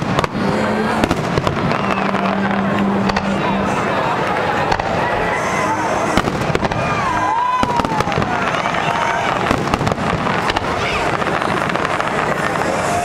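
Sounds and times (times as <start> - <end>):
crowd murmur: 0.0 - 13.0
fireworks bangs and crackles: 0.0 - 13.0
falling firework whistle: 1.4 - 2.4, 6.2 - 11.2.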